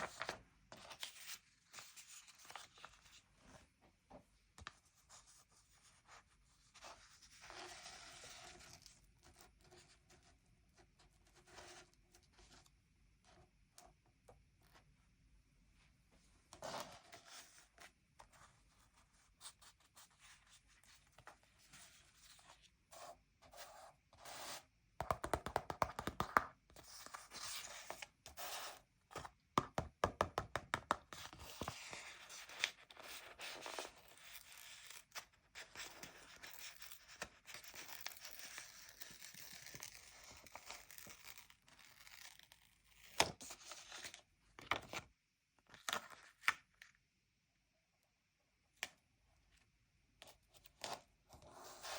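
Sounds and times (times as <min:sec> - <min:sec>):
rubbing and scraping on paper: 0:05.0 - 0:09.0.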